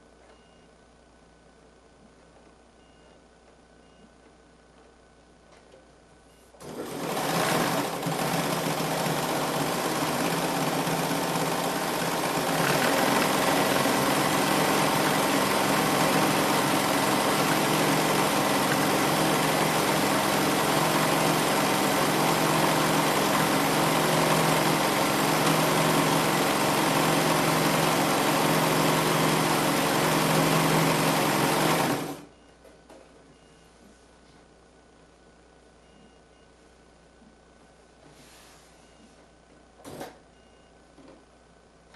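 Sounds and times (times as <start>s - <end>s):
sewing machine running: 6.6s - 32.3s.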